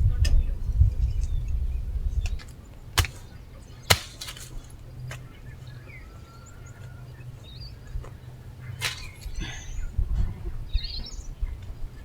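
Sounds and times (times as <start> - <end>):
sharp knocks: 3.0 - 3.2.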